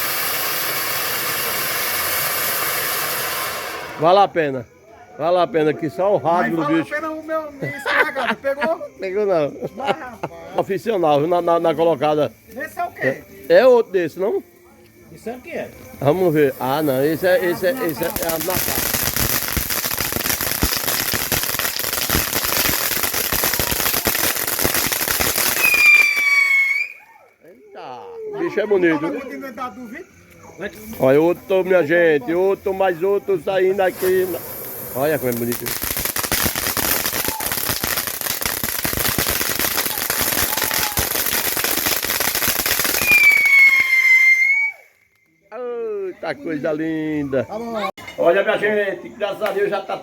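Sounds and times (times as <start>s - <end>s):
fireworks crackling: 0.0s - 4.8s, 5.8s - 27.6s, 30.7s - 47.4s
high steady whistle: 25.5s - 27.2s, 42.9s - 45.4s.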